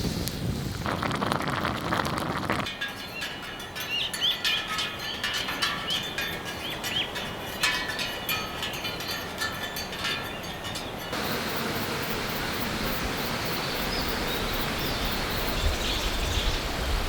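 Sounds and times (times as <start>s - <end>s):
rustling noise: 0.0s - 2.7s
small birds chirping: 10.2s - 17.0s.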